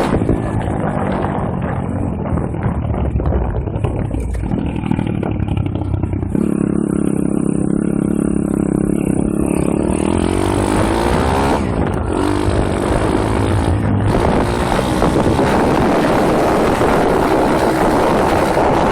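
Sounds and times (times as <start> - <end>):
pit bike engine running hard: 0.0 - 18.9.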